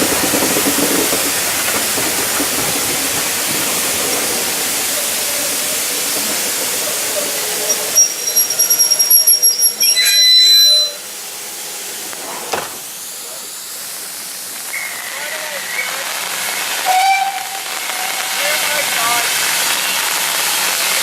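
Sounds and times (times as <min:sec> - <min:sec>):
rapid pulsing steam hiss: 0:00.0 - 0:09.8, 0:10.9 - 0:21.0
steam locomotive hissing steam: 0:00.0 - 0:21.0.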